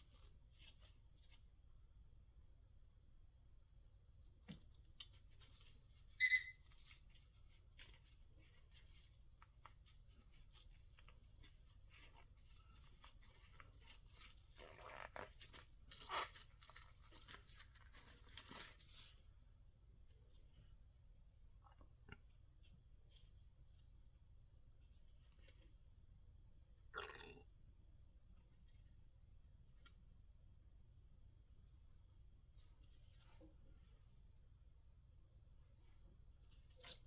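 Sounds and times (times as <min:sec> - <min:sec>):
high-pitched squeak: 0:06.2 - 0:06.7.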